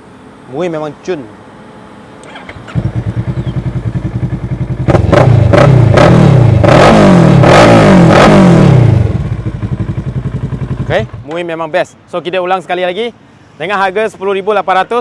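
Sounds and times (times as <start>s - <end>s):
motorcycle engine starting and revving: 2.2s - 11.6s.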